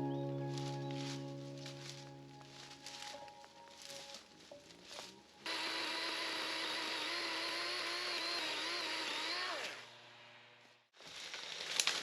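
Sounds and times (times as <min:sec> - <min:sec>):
chainsaw running: 0:05.5 - 0:10.0.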